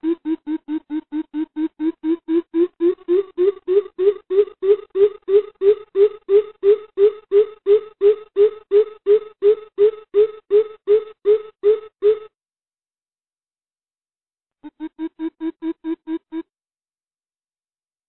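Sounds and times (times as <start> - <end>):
bird deep hooting: 0.0 - 12.3.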